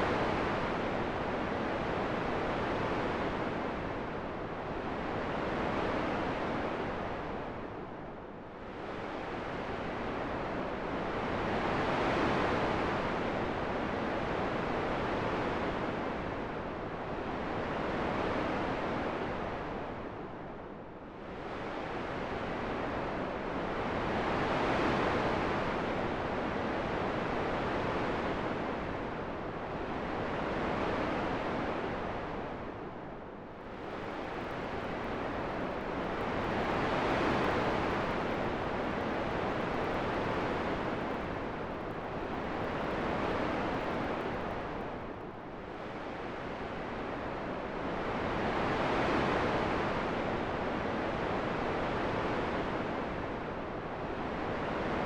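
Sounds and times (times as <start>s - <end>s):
rushing wind: 26.9s - 55.0s.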